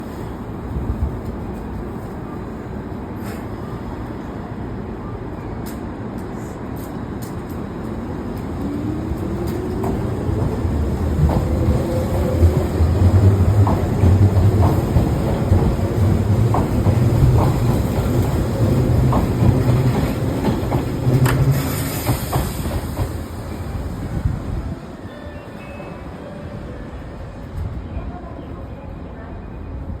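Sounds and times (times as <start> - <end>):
train running rumble: 5.6 - 24.8.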